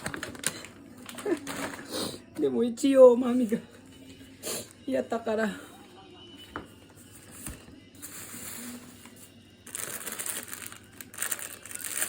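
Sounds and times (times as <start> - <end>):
plastic packets crinkling: 0.0 - 1.9, 9.7 - 12.0.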